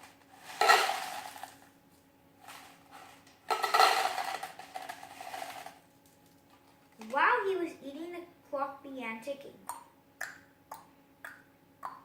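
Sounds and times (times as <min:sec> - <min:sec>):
popcorn popping: 0:00.0 - 0:01.6, 0:02.5 - 0:05.8.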